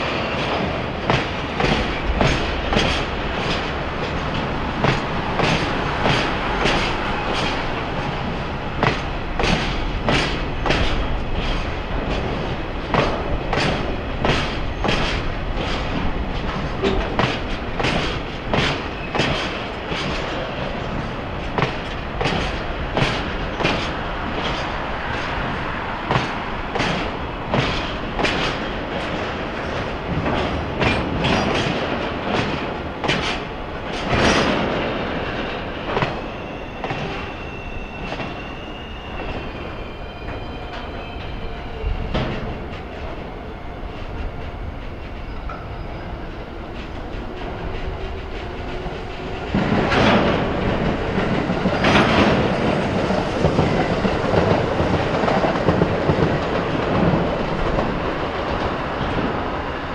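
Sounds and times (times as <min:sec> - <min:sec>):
steady train rumble: 0:00.0 - 0:59.9
wheels clacking over rail joints: 0:00.5 - 0:37.2.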